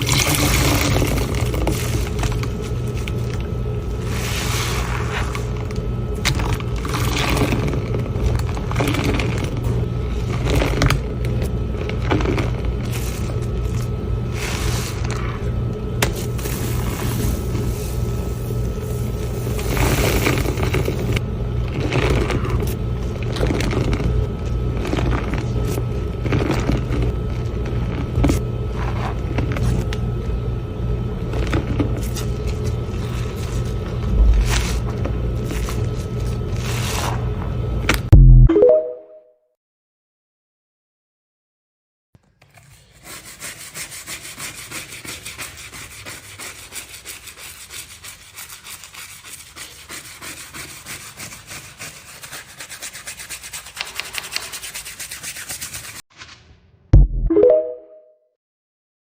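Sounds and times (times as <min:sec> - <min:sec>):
low mechanical hum: 0:00.0 - 0:38.5.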